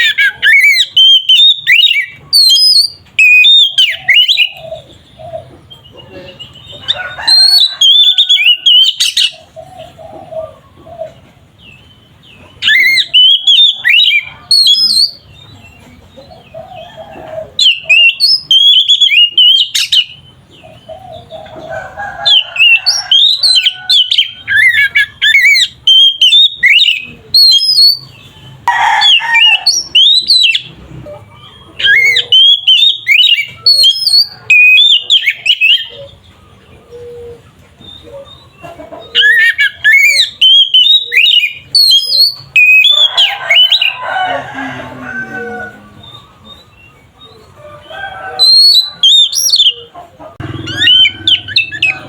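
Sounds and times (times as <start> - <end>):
bird singing whistled notes: 0.0 - 4.6, 12.6 - 15.3, 17.6 - 20.2, 22.6 - 28.2, 31.7 - 36.1, 39.2 - 44.0, 48.4 - 49.9.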